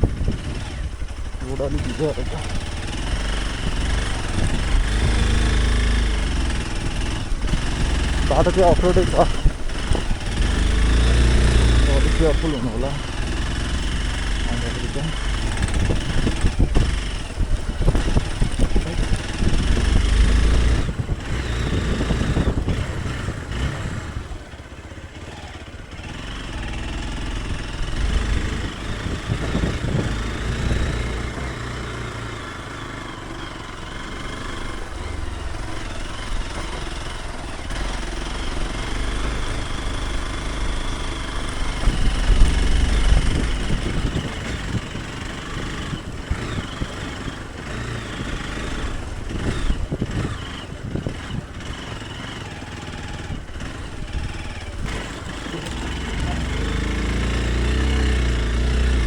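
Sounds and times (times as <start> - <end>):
motorcycle engine offroad: 0.0 - 59.0.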